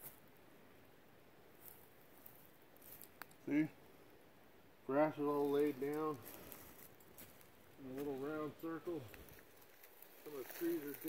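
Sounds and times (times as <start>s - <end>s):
faint rustles: 1.5s - 3.9s, 5.2s - 11.0s.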